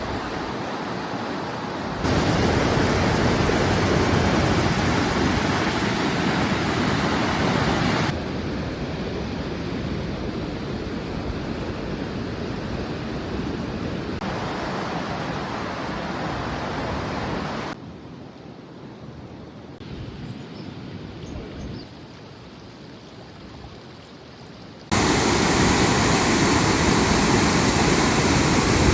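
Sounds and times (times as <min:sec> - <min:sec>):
rushing floodwater: 0:00.0 - 0:08.2, 0:14.2 - 0:17.8, 0:22.1 - 0:28.9.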